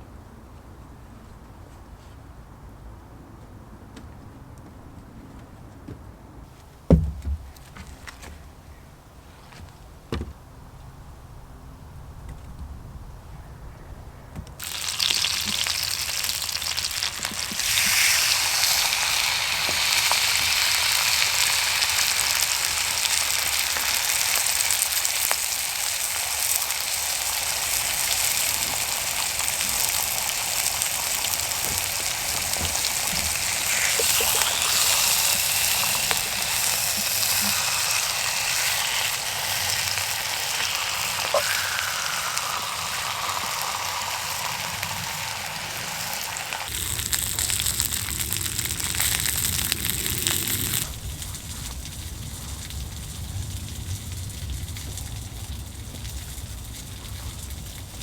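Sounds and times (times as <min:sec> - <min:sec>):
food sizzling in a pan: 0:14.6 - 0:51.0.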